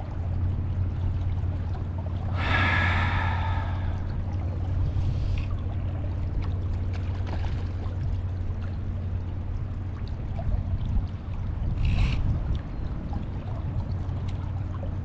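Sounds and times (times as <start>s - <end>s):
river water rushing: 2.3s - 4.2s.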